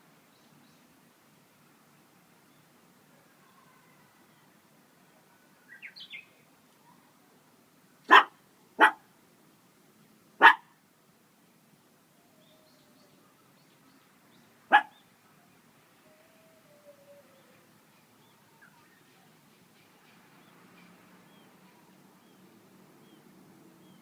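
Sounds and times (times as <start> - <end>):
dog barking: 8.1 - 9.0, 10.4 - 10.7, 14.7 - 15.0.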